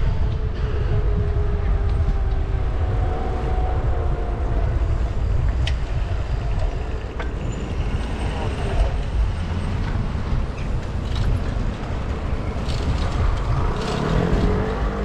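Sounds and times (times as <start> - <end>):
passing traffic: 0.0 - 15.0
wind rumble on microphone: 0.0 - 15.0.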